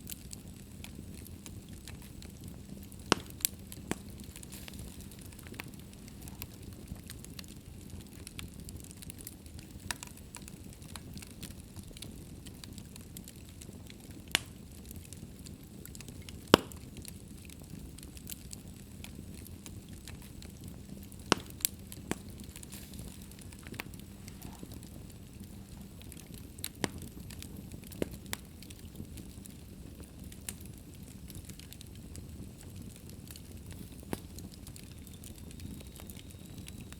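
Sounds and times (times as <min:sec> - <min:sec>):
fire crackling and popping: 0:00.0 - 0:36.9
low rumble of flames: 0:00.0 - 0:36.9.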